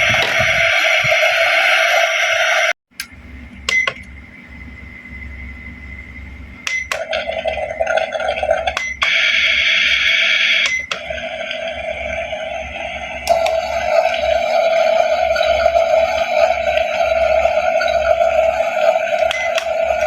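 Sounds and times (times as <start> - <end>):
toy electronic sound effect: 9.0 - 20.0.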